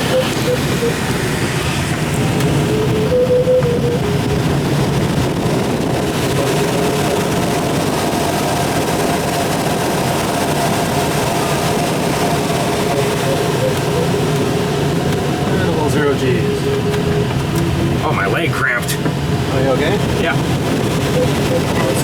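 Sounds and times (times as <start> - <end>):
thin steady whistle: 0.0 - 4.7, 9.8 - 18.0
rushing airflow over glider canopy: 0.0 - 22.0.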